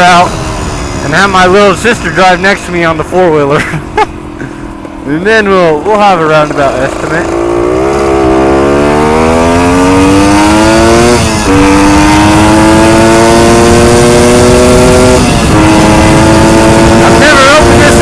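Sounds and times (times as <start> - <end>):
two-stroke motorcycle accelerating: 0.0 - 18.0.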